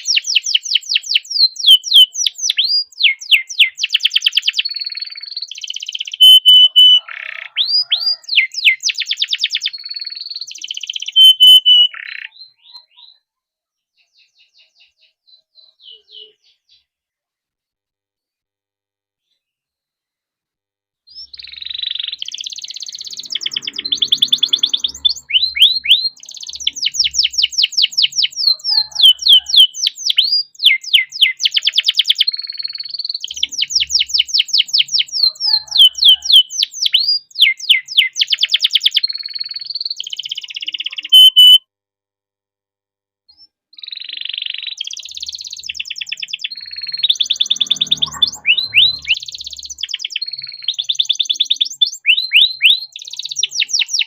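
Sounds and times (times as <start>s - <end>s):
canary singing trills: 0.0s - 16.9s, 21.1s - 41.6s, 43.3s - 54.0s.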